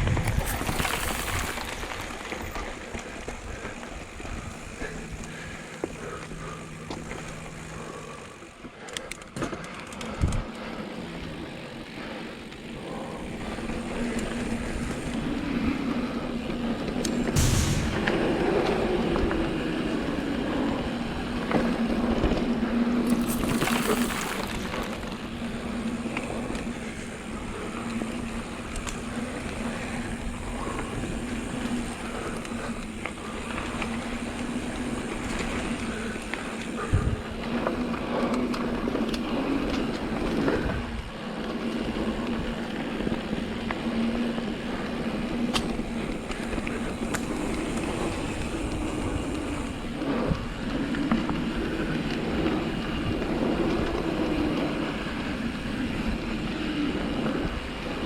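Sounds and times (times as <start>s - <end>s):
bike clicks and rattles: 0.0s - 58.0s
bike tyres rolling on dirt: 0.0s - 58.0s
sharp knock: 17.4s - 18.6s.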